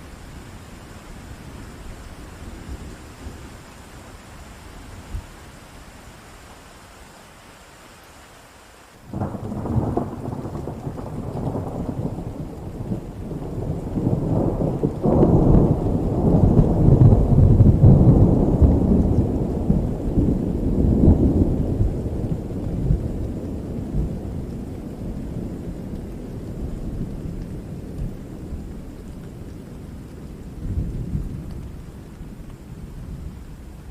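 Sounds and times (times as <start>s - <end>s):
rain falling: 0.0s - 33.9s
rolling thunder: 9.1s - 32.2s.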